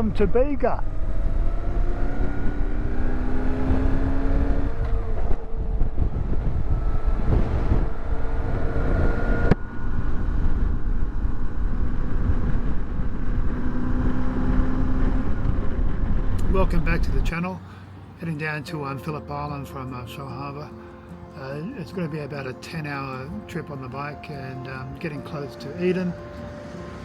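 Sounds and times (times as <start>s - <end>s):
wind rush over microphone: 0.0s - 17.3s.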